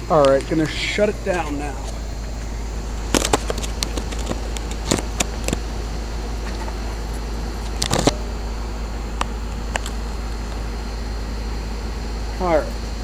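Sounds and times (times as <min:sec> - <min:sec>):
air conditioner hum and fan whoosh: 0:00.0 - 0:13.0
sharp clicks and knocks: 0:03.0 - 0:05.7, 0:06.4 - 0:08.3.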